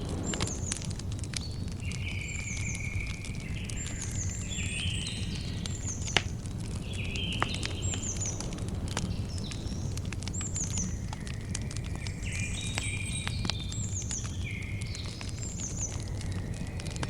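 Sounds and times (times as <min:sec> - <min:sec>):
low rumble: 0:00.0 - 0:01.9
campfire crackling and popping: 0:00.0 - 0:17.0.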